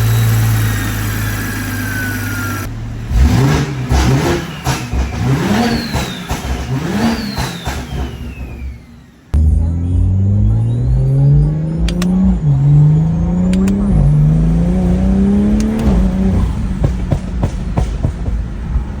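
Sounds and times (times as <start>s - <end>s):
turbo whistle: 0.0s - 2.7s
car engine accelerating hard: 0.0s - 19.0s
exhaust cracks: 0.0s - 19.0s.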